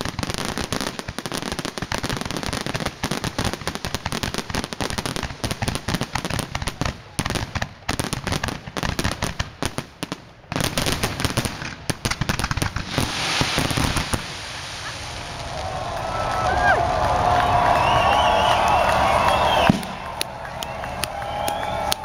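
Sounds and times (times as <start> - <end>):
firework bangs and crackles: 0.0 - 22.0
hissing rush: 12.7 - 19.7.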